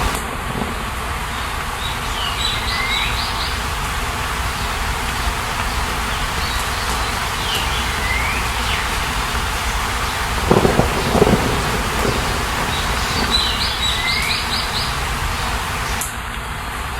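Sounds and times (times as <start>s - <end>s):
steady rain: 0.0s - 16.9s
bird singing whistled phrases: 1.8s - 3.6s, 6.1s - 15.0s.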